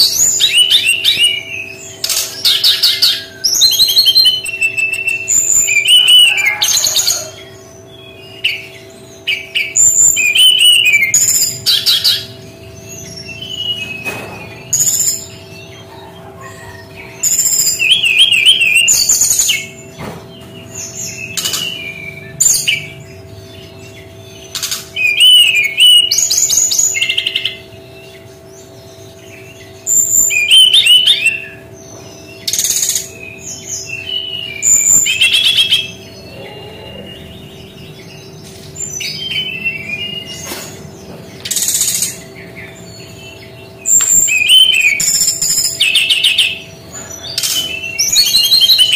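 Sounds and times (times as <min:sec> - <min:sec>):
bird singing trilled phrases: 0:00.0 - 0:48.9.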